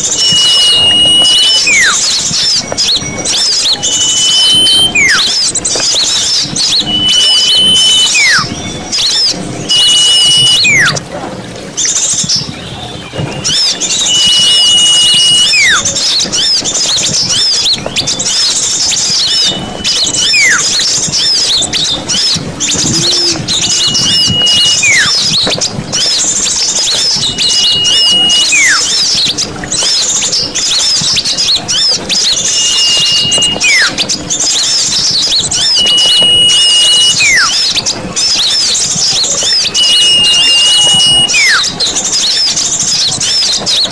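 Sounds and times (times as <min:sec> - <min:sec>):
high whistle gliding down: 0:00.0 - 0:11.0, 0:13.1 - 0:29.4, 0:30.7 - 0:42.2
small birds chattering: 0:00.0 - 0:43.9.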